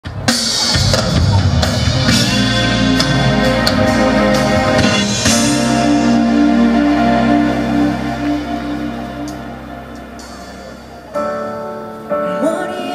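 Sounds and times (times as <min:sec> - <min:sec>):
live band music: 0:00.0 - 0:12.9.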